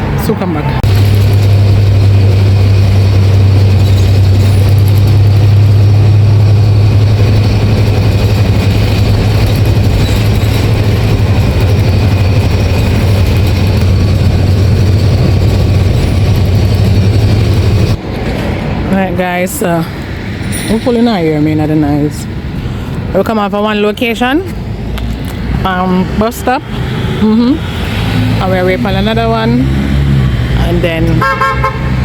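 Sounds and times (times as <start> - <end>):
bus diesel engine droning: 0.0 - 18.1.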